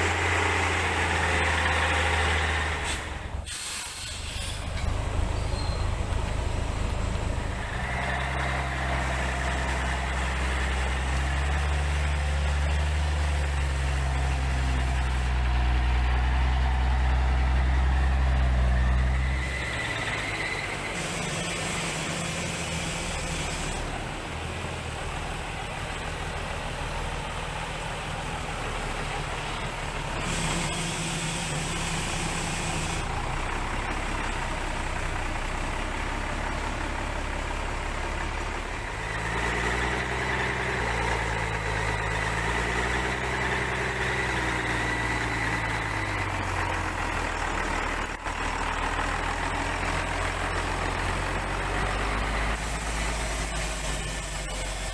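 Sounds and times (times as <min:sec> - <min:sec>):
vehicle engine running: 0:00.0 - 0:54.9.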